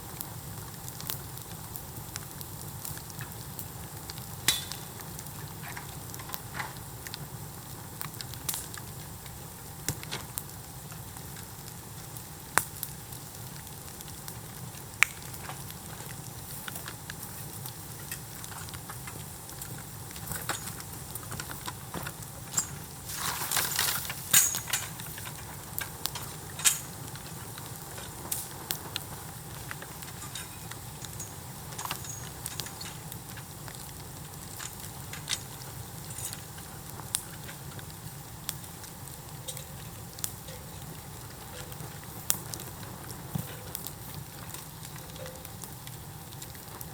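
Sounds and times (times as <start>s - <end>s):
bonfire hissing and crackling: 0.0s - 46.9s
loud cracking: 18.0s - 37.9s.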